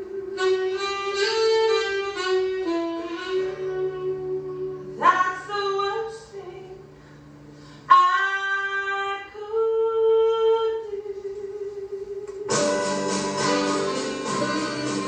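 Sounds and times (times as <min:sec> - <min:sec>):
woman singing a slow ballad: 0:03.7 - 0:06.9, 0:07.9 - 0:12.8
live band with guitar: 0:12.5 - 0:15.0.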